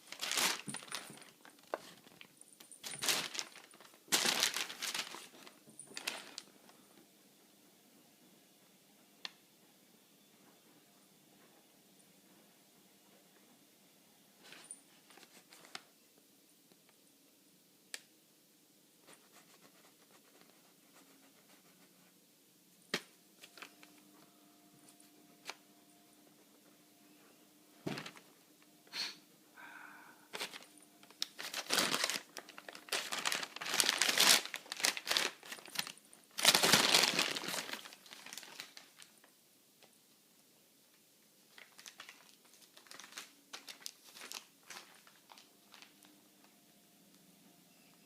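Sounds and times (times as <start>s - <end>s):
newspaper rustling and crinkling: 0.0s - 6.5s, 14.4s - 15.9s, 30.4s - 39.3s, 41.5s - 46.0s.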